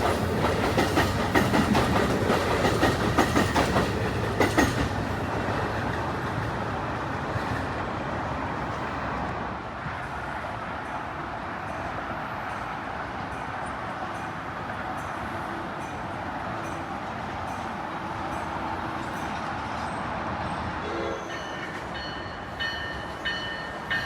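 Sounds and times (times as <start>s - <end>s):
wheels clicking over rail joints: 0.0s - 6.7s
train rail rumble: 0.0s - 24.0s.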